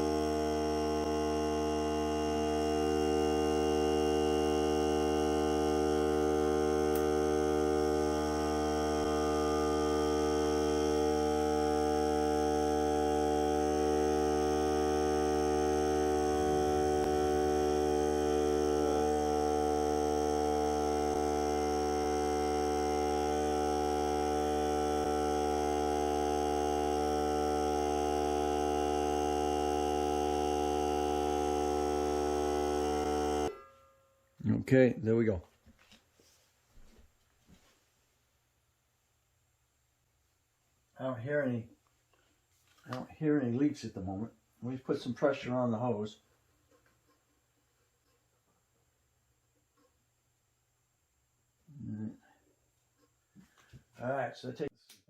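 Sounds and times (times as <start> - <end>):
air compressor humming: 0.0 - 33.6.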